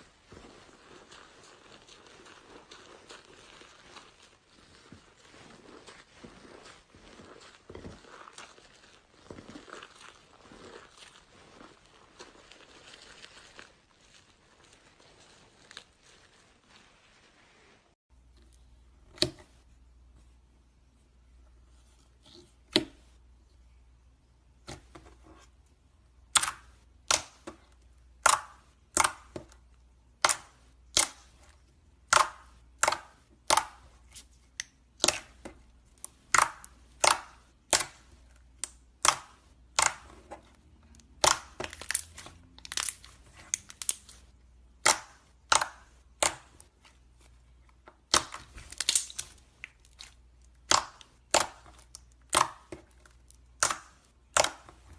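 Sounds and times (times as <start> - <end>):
slime popping and clicking: 26.3 - 27.6, 28.2 - 34.0, 34.6 - 44.2, 44.8 - 46.6, 48.0 - 54.8.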